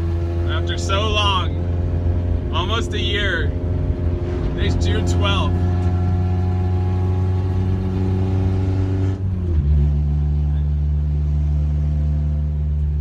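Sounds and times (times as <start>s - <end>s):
car engine running loud: 0.0s - 13.0s.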